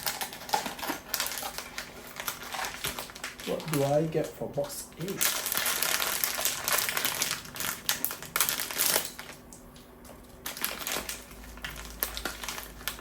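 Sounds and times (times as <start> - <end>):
cardboard and plastic crinkling: 0.0 - 9.5, 10.1 - 13.0
packaging clicks: 0.0 - 9.8, 10.4 - 13.0.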